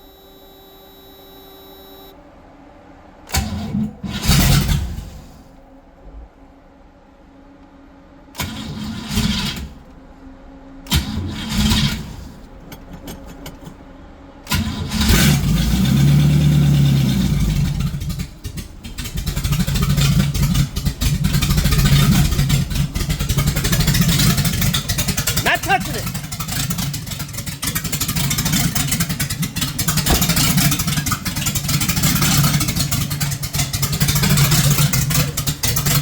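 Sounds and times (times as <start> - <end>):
car engine cranking: 3.3 - 5.5, 10.8 - 13.9, 14.5 - 36.0
car engine running and revving: 14.5 - 36.0
engine ticking: 14.5 - 36.0.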